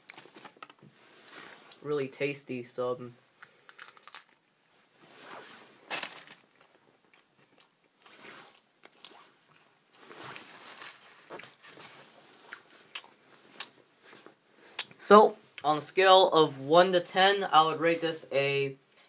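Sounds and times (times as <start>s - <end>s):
person chewing crunchy food: 6.5s - 11.6s, 12.4s - 13.8s.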